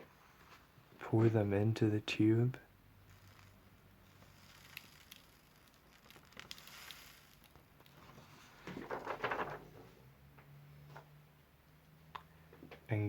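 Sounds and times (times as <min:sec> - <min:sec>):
matches tumbling into paper tube: 0:03.1 - 0:09.7.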